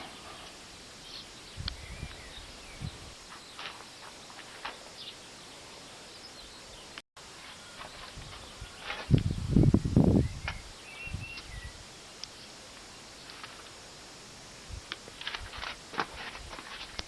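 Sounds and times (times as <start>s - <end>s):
faint bird chirps: 7.6s - 13.4s.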